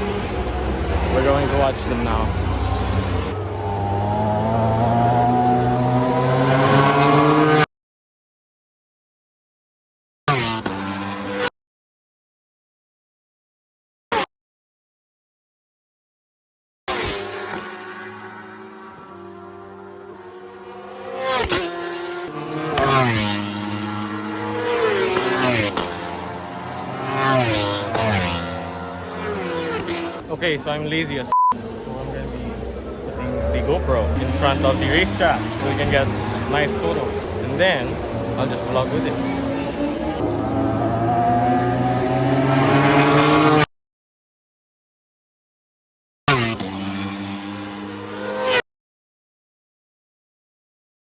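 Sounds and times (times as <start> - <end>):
motorcycle engines accelerating: 0.0 - 7.6, 10.3 - 11.5, 16.9 - 43.7, 46.3 - 48.6.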